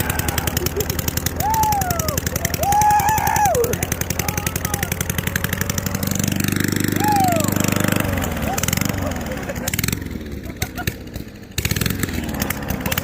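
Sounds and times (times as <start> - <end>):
voices shouting: 0.0 - 5.1, 6.8 - 9.3
lawn mower engine popping: 0.0 - 13.0.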